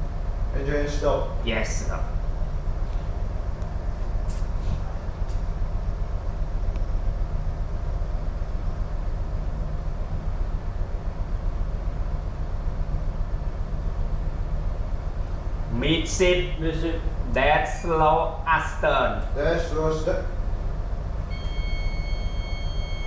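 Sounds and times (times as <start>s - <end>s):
ship low rumble: 0.0s - 23.0s.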